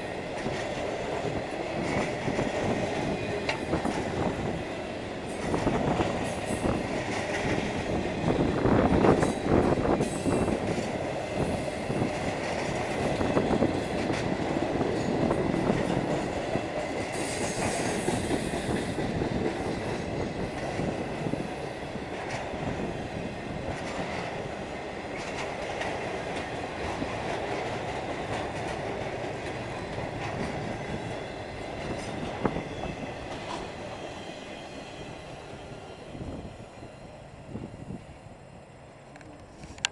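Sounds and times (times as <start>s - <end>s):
freight train rumbling past: 0.0s - 39.9s
wheels clacking over rail joints: 23.7s - 33.9s.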